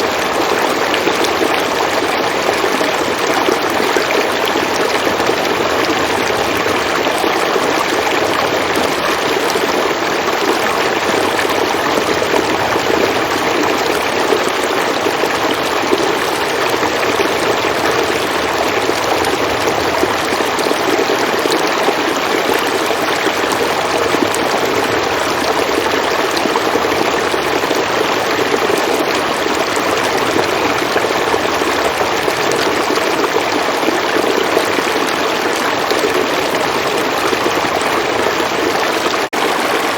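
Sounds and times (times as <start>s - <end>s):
river water flowing over stones: 0.0s - 39.9s.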